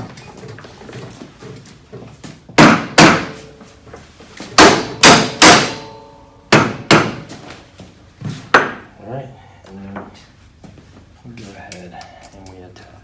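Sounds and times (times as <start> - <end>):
sharp knocks on metal: 2.6 - 3.4, 4.6 - 7.3, 8.5 - 8.9.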